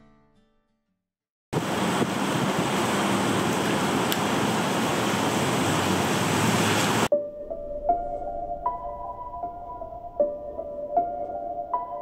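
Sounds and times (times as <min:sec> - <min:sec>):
heavy rain on grass and leaves: 0:01.6 - 0:07.1.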